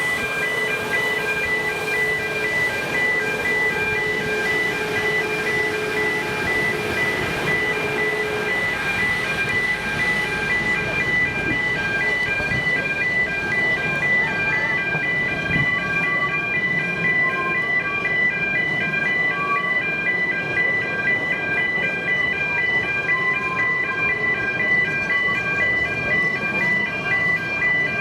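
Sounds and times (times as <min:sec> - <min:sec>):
level crossing alarm: 0:00.0 - 0:28.0
street noise: 0:00.0 - 0:28.0.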